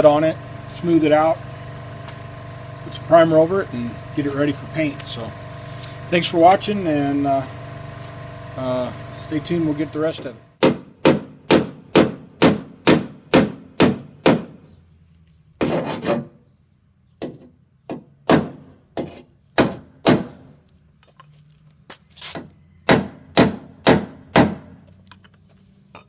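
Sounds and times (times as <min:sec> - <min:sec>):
short scraping sound: 0:15.6 - 0:16.4.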